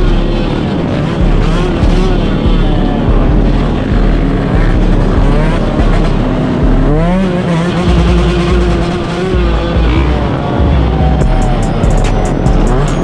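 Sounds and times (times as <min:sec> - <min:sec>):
off-road motorcycle engines revving: 0:00.0 - 0:13.0.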